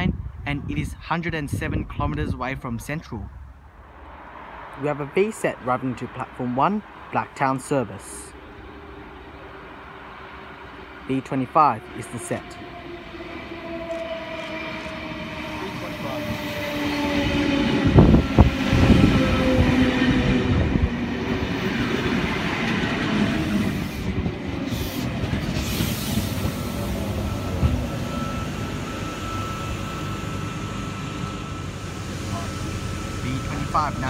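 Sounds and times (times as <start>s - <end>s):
train cars rumbling: 0.0s - 34.0s
train braking whine: 11.8s - 34.0s.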